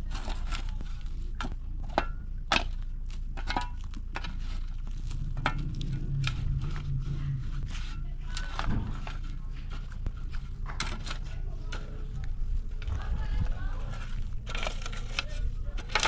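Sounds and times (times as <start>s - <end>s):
sharp knocks and crunching clicks: 0.0s - 7.7s, 8.3s - 16.0s
steady low hum: 0.0s - 16.0s
low drone: 4.6s - 16.0s.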